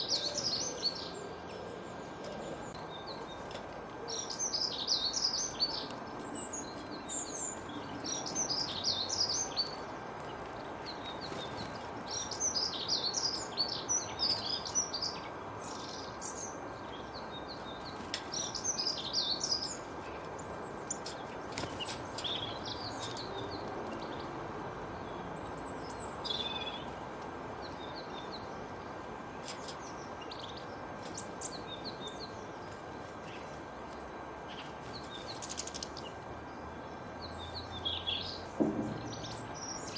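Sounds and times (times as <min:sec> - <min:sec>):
songbirds chirping: 0:00.0 - 0:39.9
steady background noise: 0:00.0 - 0:39.9.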